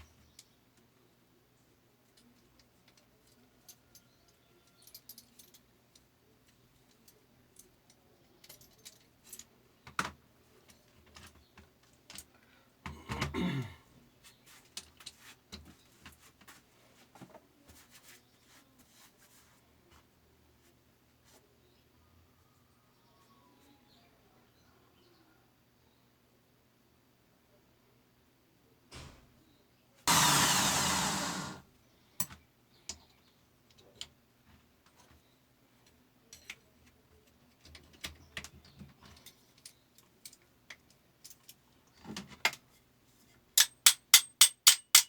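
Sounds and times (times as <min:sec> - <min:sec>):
light metallic clicks and clinks: 0:02.1 - 0:09.5.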